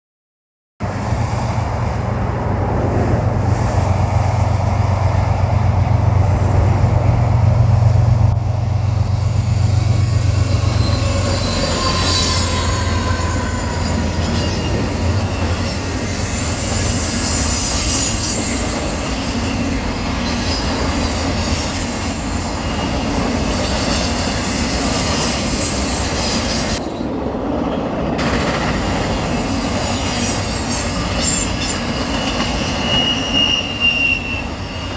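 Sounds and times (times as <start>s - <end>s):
diesel locomotives humming: 0.8s - 34.9s
train cars rumbling: 0.8s - 34.9s
train wheels squealing: 8.6s - 27.2s, 28.2s - 34.9s.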